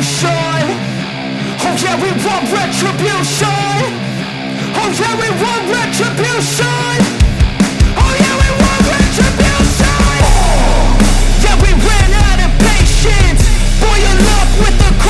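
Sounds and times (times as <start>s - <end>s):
rock song over sound system: 0.0s - 15.0s
heavy deep bass: 7.1s - 15.0s.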